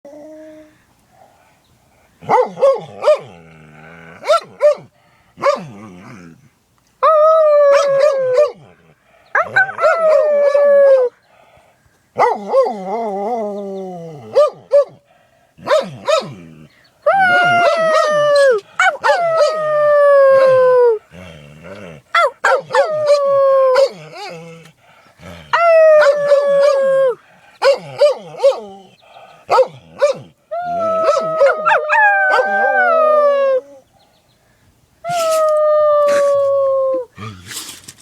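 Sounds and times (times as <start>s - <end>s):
dog howling: 17.1s - 21.0s, 25.5s - 28.9s, 29.5s - 33.8s.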